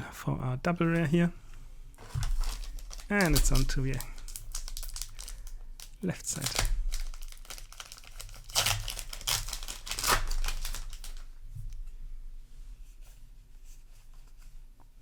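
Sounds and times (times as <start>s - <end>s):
soft crackles and clicks: 0.9s - 11.8s
wrapper tearing and crinkling: 2.0s - 11.3s.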